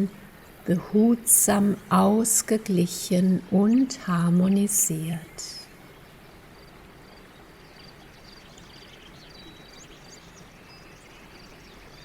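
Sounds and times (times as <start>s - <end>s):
outdoor ambience hiss: 0.0s - 12.0s
small birds chirping: 5.1s - 12.0s.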